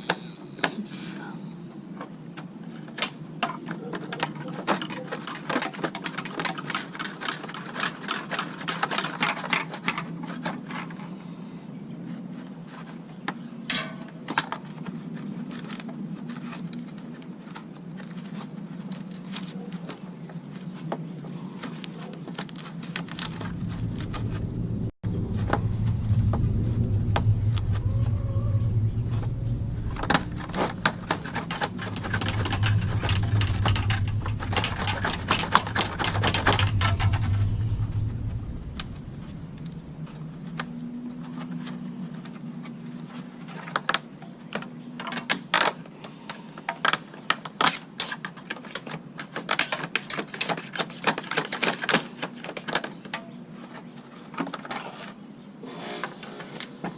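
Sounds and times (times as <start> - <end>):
plastic parts clicking and knocking: 2.0 - 11.0, 12.7 - 21.0, 29.8 - 40.7, 41.3 - 55.2
low buzzing hum: 22.9 - 42.9.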